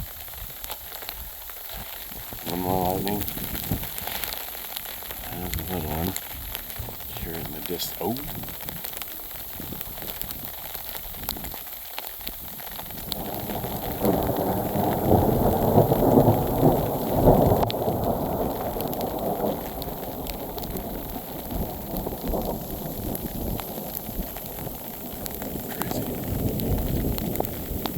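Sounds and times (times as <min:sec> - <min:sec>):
sleet pattering: 0:01.5 - 0:11.6
ice pellets ticking: 0:01.9 - 0:14.2
distant thunder rumbling: 0:02.0 - 0:11.0, 0:12.8 - 0:27.9.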